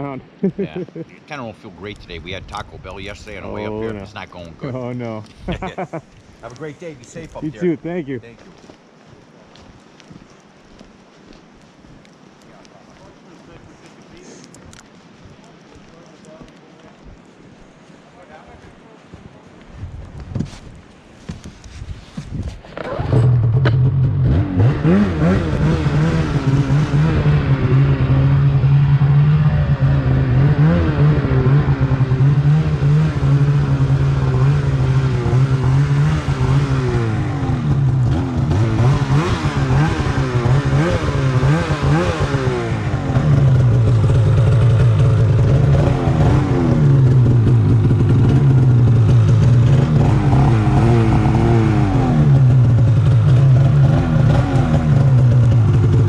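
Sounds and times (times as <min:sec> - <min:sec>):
snowmobile engine revving: 0:00.0 - 0:04.9, 0:22.8 - 0:56.0.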